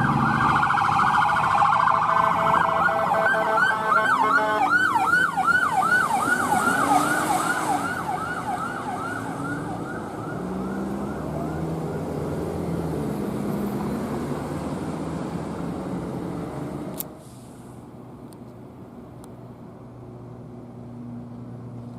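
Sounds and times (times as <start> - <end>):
siren yelping: 0.0 - 12.2
vehicle engine and road noise: 0.0 - 21.9.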